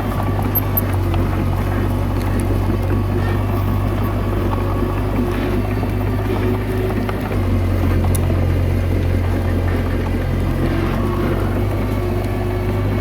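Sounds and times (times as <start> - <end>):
bulldozer diesel engine running: 0.0 - 13.0.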